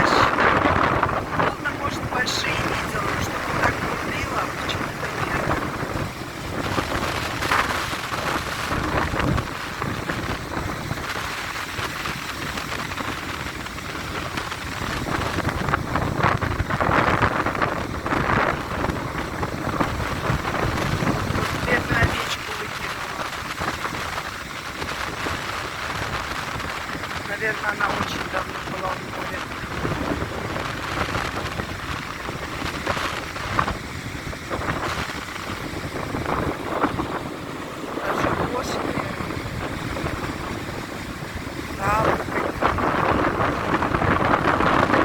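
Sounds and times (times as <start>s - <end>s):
sea surf breaking: 0.0s - 45.0s
wind buffeting microphone: 0.0s - 45.0s.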